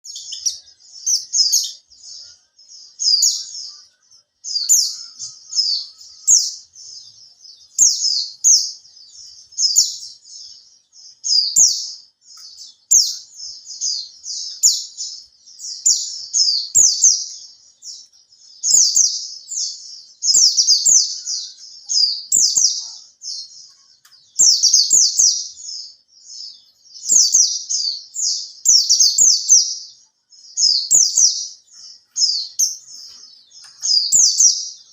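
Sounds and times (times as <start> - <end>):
bird twittering song: 0.0 - 34.9.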